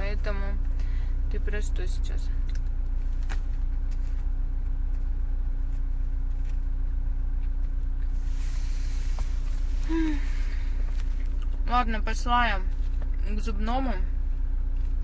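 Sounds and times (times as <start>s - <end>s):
car idling hum: 0.0s - 15.0s
soft rustle: 8.0s - 11.5s.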